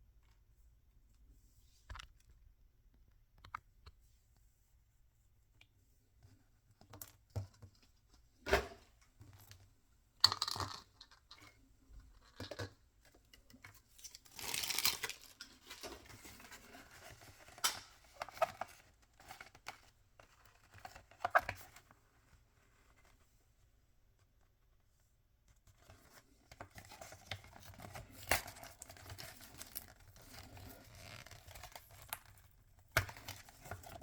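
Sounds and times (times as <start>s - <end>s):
packaging being torn and crinkled: 14.0s - 15.9s.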